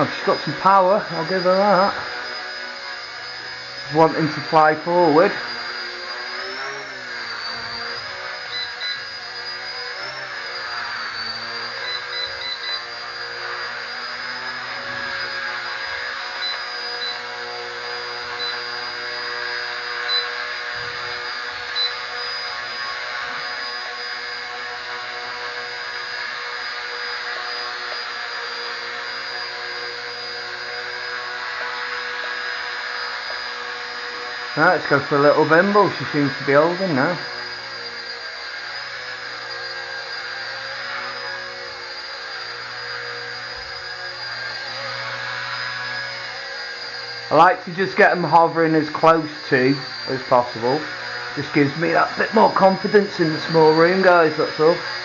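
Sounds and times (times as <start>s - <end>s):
rc helicopter rotor whine: 0.0s - 55.0s
short high beeps: 8.5s - 9.0s.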